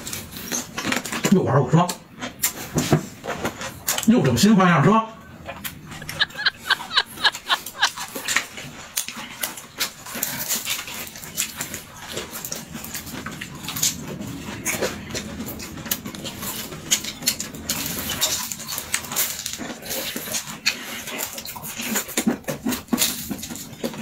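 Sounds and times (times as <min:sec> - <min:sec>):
wet chewing and lip-smacking: 0:05.5 - 0:24.0.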